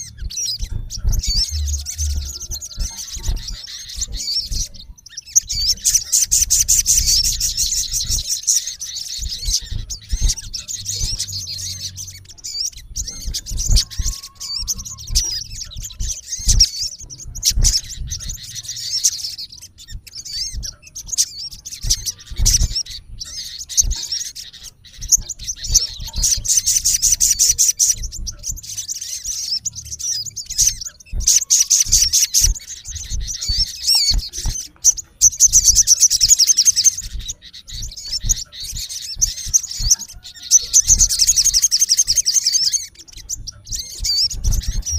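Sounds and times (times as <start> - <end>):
low thumps: 0.0 - 5.0, 9.2 - 35.8
bird harsh chirps and chattering trills: 0.0 - 44.9.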